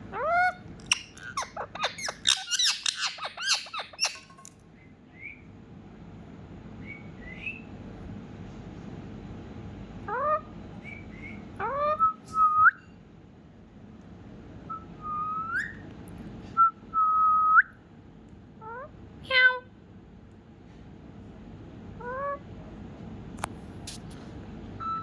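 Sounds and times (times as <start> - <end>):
parrot squawking: 0.1 - 4.4.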